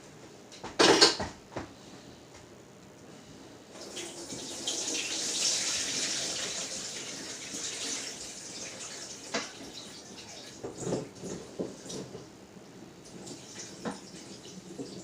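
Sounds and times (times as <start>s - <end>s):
tap water running into sink: 3.8s - 12.1s, 13.1s - 15.0s.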